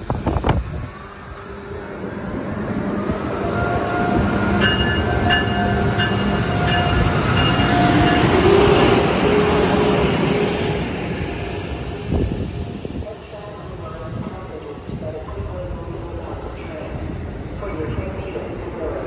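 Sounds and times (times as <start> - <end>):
electric train rolling past: 0.0 - 19.0
high ringing tone: 4.6 - 8.9.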